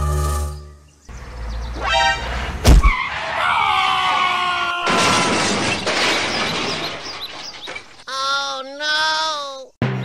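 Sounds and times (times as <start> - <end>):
loud crash and shatter: 4.8 - 8.0.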